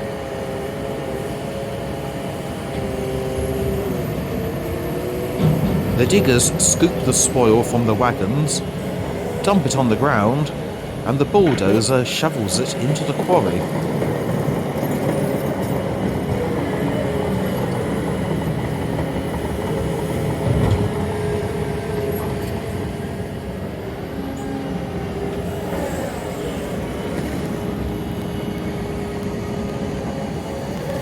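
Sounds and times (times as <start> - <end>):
heavy diesel engines running: 0.0 - 31.0.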